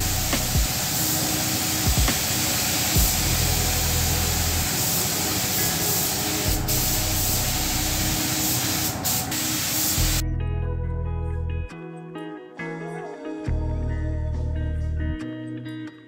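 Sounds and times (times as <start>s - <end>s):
spray gun hissing: 0.0s - 10.2s
guitar music: 0.0s - 16.0s.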